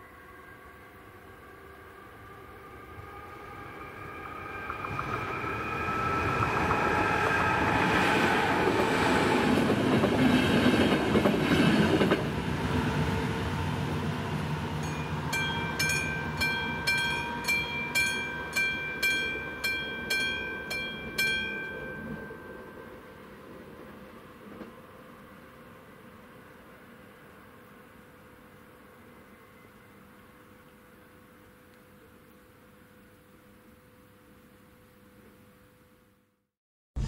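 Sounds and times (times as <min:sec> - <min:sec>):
train passing with wheel clatter: 0:01.5 - 0:27.2
electronic crossing warning bell: 0:14.8 - 0:23.1.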